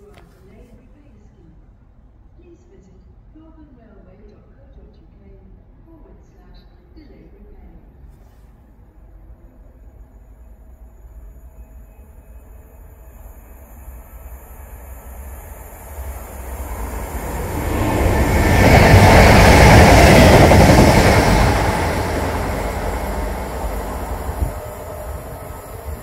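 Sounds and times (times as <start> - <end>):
passing train rumble: 8.8 - 26.0.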